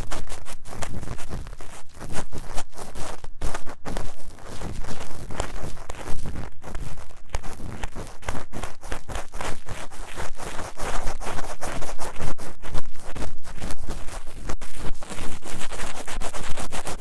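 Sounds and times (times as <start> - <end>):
scratching inside microphone ear: 0.0 - 17.0.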